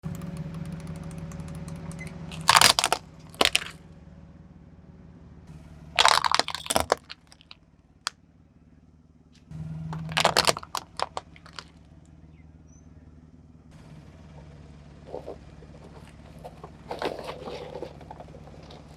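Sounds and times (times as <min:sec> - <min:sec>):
car engine running low: 0:00.0 - 0:18.9
tyre crunching objects: 0:02.1 - 0:03.8, 0:06.0 - 0:07.6, 0:09.9 - 0:11.8, 0:14.4 - 0:18.9.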